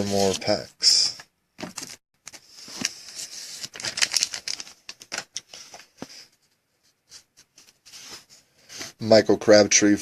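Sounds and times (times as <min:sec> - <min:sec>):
wrapper crinkling: 0:02.8 - 0:05.6.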